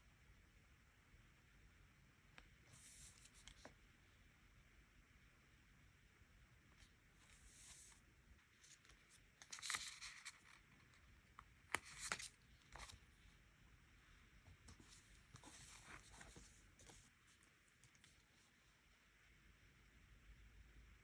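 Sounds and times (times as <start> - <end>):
paper rustling: 8.7 - 10.7, 11.7 - 13.0, 14.7 - 17.1.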